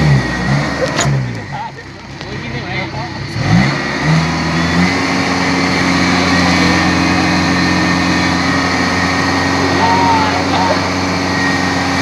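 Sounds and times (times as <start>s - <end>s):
diesel engine revving: 0.0s - 12.0s.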